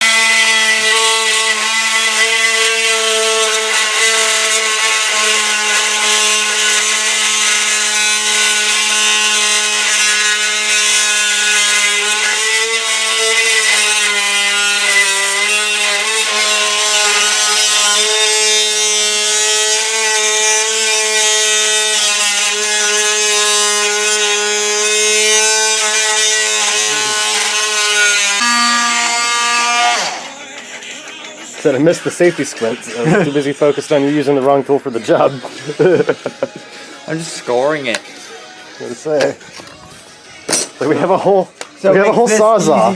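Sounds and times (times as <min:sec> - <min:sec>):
power tool cutting with whine: 0:00.0 - 0:30.4.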